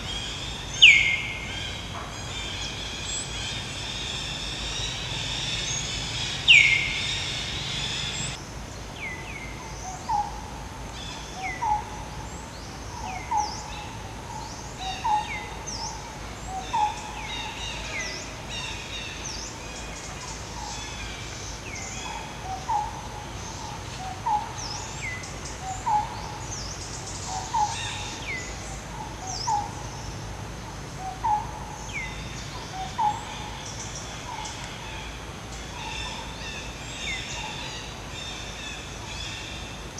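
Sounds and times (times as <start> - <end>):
steady high hiss: 0.0 - 39.9.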